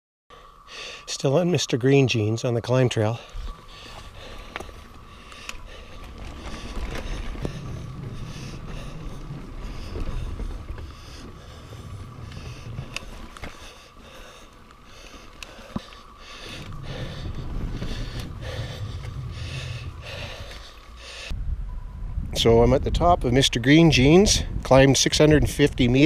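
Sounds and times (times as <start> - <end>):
hard breathing: 0.3 - 1.1, 3.1 - 21.4
wind and tyre rumble: 2.6 - 26.0
bike clicks and knocks: 3.9 - 19.2.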